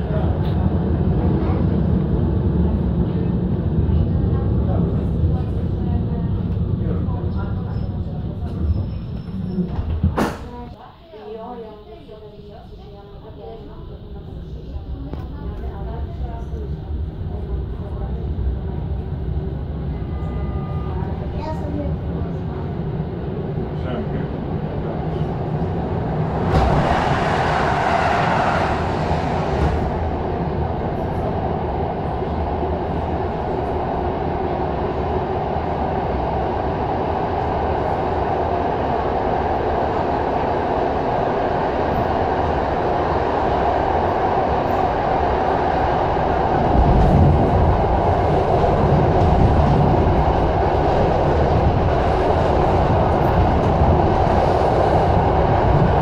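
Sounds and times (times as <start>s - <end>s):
wheels rumbling on rail: 0.0s - 56.0s
rushing air: 25.0s - 56.0s.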